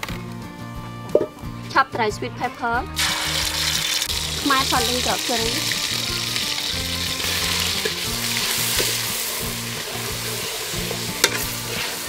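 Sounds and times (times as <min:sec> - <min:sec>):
curry paste sizzling in oil: 0:03.0 - 0:12.0
metal ladle clinking against pot: 0:11.2 - 0:11.5.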